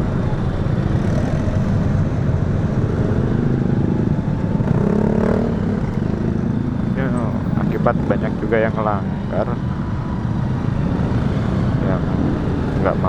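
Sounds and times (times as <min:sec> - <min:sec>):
surrounding vehicle engines: 0:00.0 - 0:13.0
motorcycle engine running: 0:04.4 - 0:08.3.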